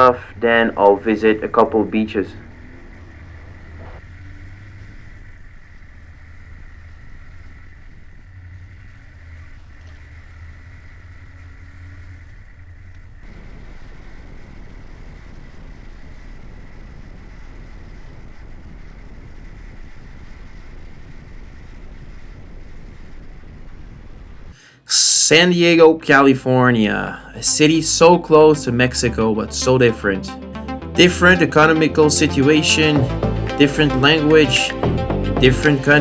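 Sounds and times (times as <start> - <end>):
wind and road noise: 0.0 - 24.6
motorcycle engine drone: 0.0 - 36.0.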